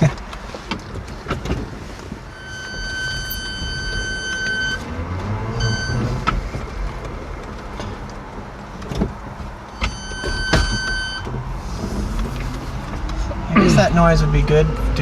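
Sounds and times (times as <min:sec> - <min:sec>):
road and tyre rumble: 0:00.0 - 0:15.0
knocks: 0:09.8 - 0:11.2.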